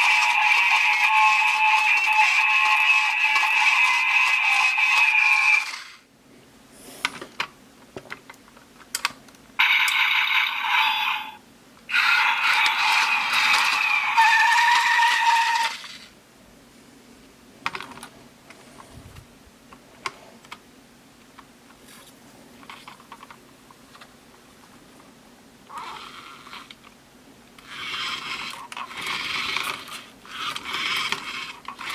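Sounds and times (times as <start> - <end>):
toy car electronic sounds and music: 0.0 - 6.0, 9.6 - 16.1.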